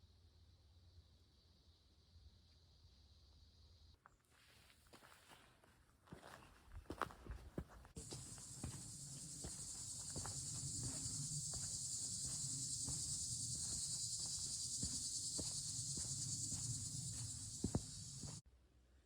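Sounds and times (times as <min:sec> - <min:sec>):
crickets chirring: 0:08.0 - 0:18.4.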